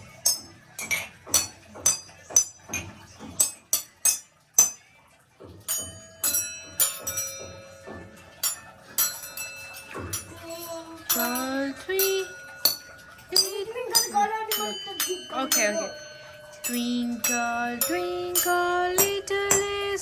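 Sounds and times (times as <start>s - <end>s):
cups and glasses clinking: 0.0s - 20.0s
person speaking: 13.3s - 20.0s.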